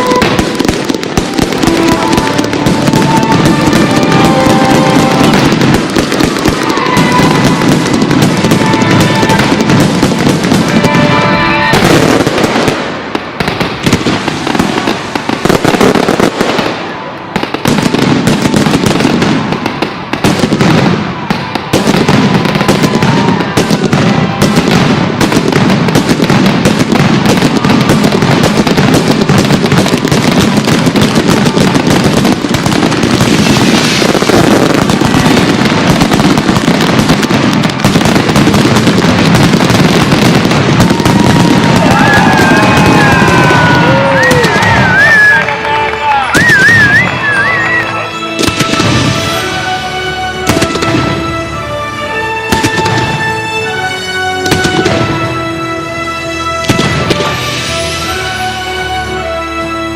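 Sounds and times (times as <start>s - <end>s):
fireworks bangs and crackle: 0.0s - 59.9s
show music soundtrack: 45.2s - 59.9s.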